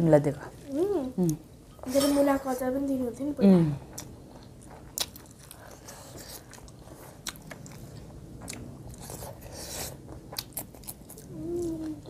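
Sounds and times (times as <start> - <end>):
people chewing: 3.4 - 12.0.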